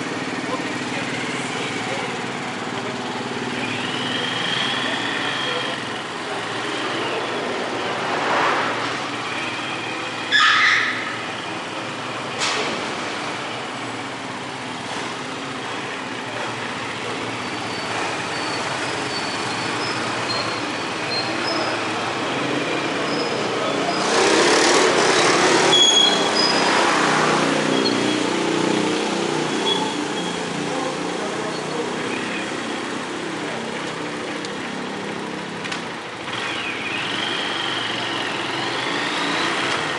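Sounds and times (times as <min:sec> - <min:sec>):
vehicle engine running: 0:00.0 - 0:08.2, 0:11.2 - 0:39.9
road traffic noise: 0:00.0 - 0:39.9
loud rush of noise: 0:05.8 - 0:10.2.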